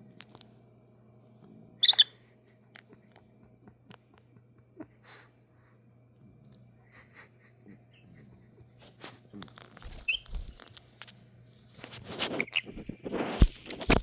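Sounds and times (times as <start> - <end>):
lovebirds chirping: 1.8 - 2.1
wing flapping: 9.8 - 10.7, 11.9 - 14.0.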